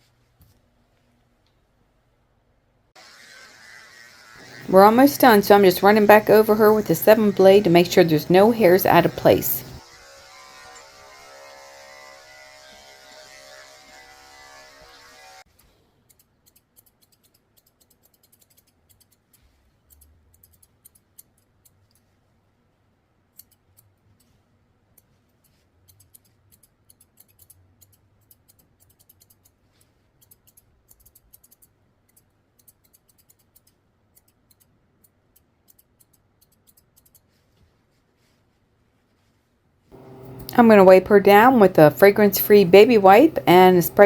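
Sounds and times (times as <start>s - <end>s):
scissors snipping hair: 25.8s - 29.6s, 30.2s - 37.3s.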